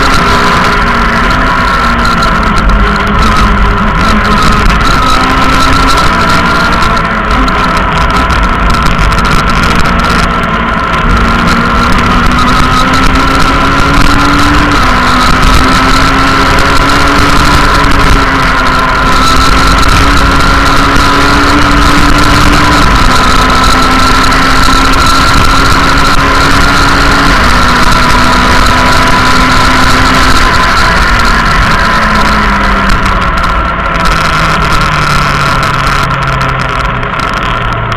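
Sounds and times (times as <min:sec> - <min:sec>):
rally car engine revving: 0:00.0 - 0:37.9.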